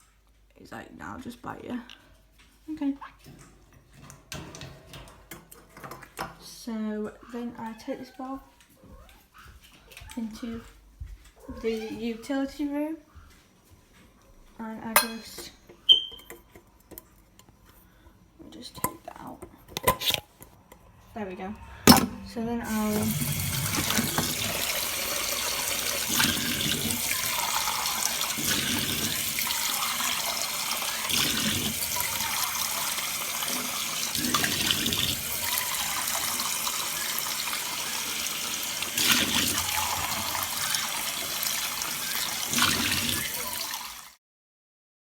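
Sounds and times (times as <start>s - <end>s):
tap water running into sink: 21.9s - 44.2s.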